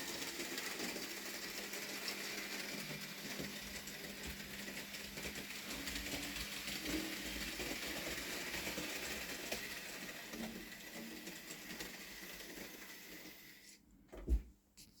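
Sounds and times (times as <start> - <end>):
model train motor whirr: 0.0 - 13.7
thump: 14.1 - 14.5.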